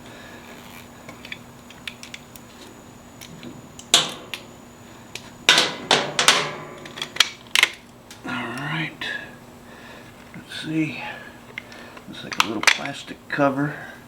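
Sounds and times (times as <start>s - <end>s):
metal bolts and tools clicking: 3.8s - 4.5s, 5.5s - 7.8s.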